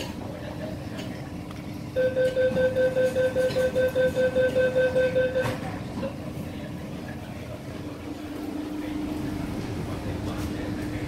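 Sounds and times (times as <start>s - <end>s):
train electrical hum: 0.0s - 11.0s
rapid door warning beeps: 2.0s - 5.6s.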